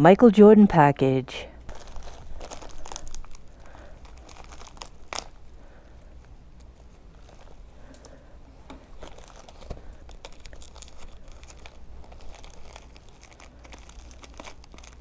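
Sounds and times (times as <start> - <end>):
package wrapping tearing: 1.7 - 5.4, 8.9 - 15.0.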